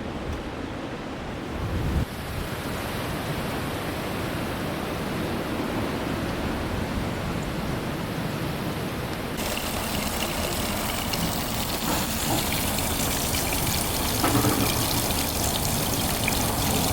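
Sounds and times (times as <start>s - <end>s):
water running and trickling: 9.4s - 16.9s.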